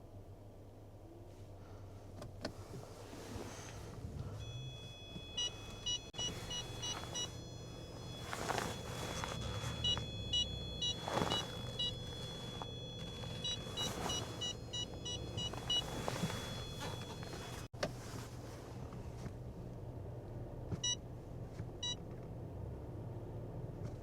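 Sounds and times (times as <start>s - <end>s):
low hum: 0.0s - 17.7s
steady high tone: 4.4s - 17.7s
rapid electronic beeping: 4.5s - 17.7s.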